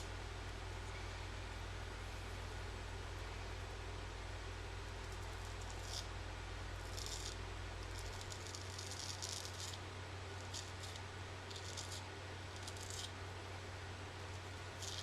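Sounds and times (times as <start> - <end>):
straight razor scraping stubble: 5.2 - 6.1, 6.8 - 9.8, 10.4 - 12.0, 12.6 - 13.1, 14.8 - 15.0.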